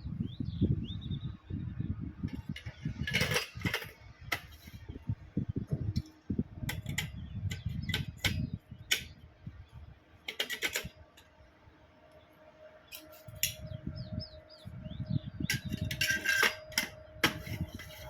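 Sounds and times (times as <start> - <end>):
metal parts clinking: 2.3 - 4.8, 10.3 - 11.3, 12.9 - 13.6, 15.5 - 18.0.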